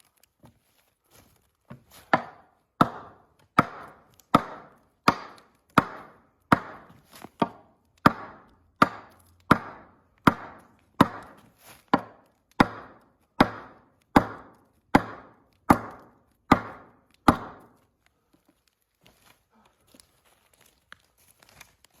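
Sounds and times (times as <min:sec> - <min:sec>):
chopping strikes on wood: 0:01.7 - 0:17.8.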